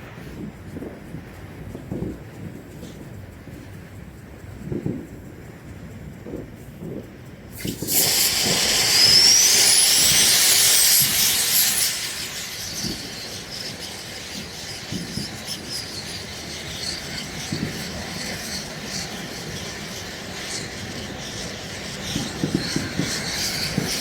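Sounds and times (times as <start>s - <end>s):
fountain firework hissing: 7.4s - 24.0s
firework rising whistle: 7.5s - 24.0s.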